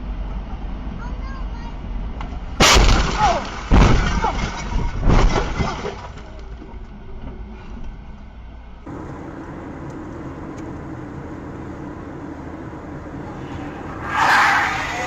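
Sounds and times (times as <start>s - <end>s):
car engine and road noise: 0.0s - 2.7s, 6.3s - 15.0s.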